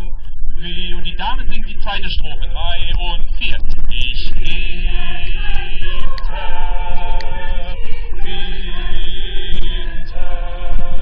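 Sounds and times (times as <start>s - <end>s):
choir singing held notes: 4.5s - 11.0s.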